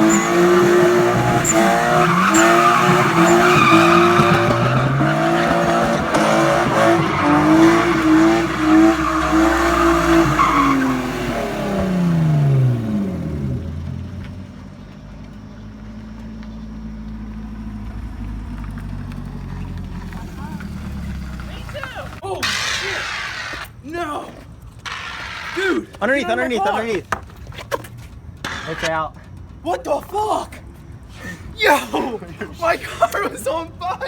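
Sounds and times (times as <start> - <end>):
car engine revving high: 0.0 - 14.2
tyres squealing: 0.0 - 14.4, 19.5 - 34.0.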